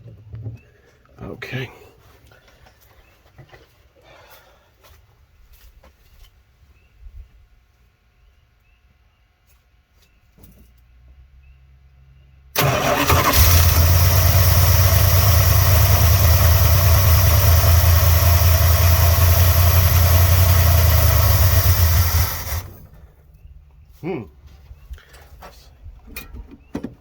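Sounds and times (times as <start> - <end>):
car engine starting and running: 12.6 - 23.0.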